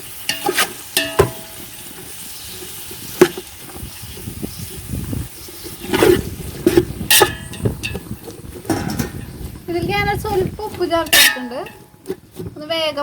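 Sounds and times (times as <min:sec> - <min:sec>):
onions sizzling in hot oil: 0:00.0 - 0:12.4
spoon knocking and scraping pan: 0:00.3 - 0:02.2, 0:05.7 - 0:09.6, 0:10.3 - 0:12.5.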